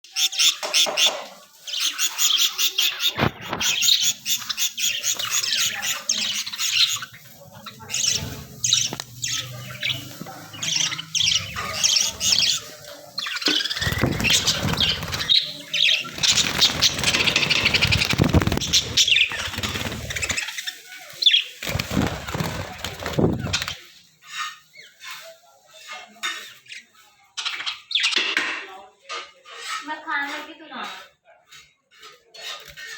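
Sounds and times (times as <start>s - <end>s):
budgerigars chirping: 0.0s - 23.8s
wings flapping: 13.4s - 20.7s, 21.5s - 23.8s.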